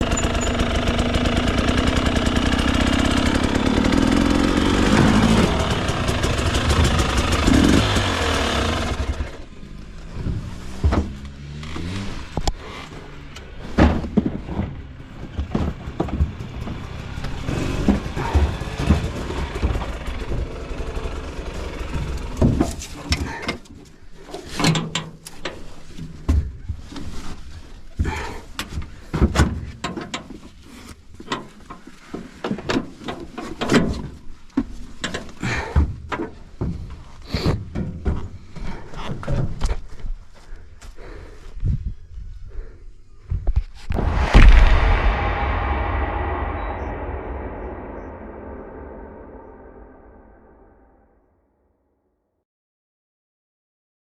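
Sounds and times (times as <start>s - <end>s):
dirt bike engine running: 0.0s - 9.4s
knocks clunks and rattles: 10.1s - 12.6s, 13.3s - 21.0s, 22.0s - 23.7s, 24.3s - 30.6s, 31.2s - 39.9s.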